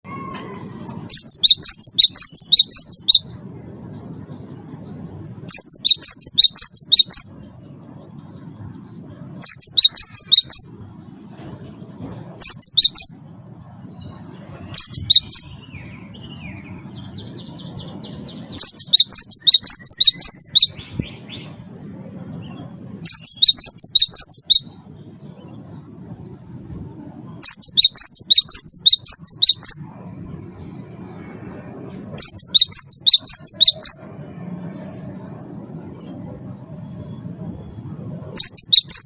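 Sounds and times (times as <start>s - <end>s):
bird singing sharp high notes: 0.0s - 3.4s, 5.4s - 7.4s, 9.4s - 10.8s, 12.4s - 13.2s, 14.0s - 21.7s, 23.0s - 24.8s, 27.3s - 29.9s, 32.2s - 34.1s, 38.3s - 39.0s
low background rumble: 0.0s - 39.0s
buzzy bird phrase: 0.1s - 3.3s, 9.3s - 10.7s, 14.6s - 21.4s, 23.0s - 24.7s, 27.3s - 29.8s, 32.2s - 34.1s.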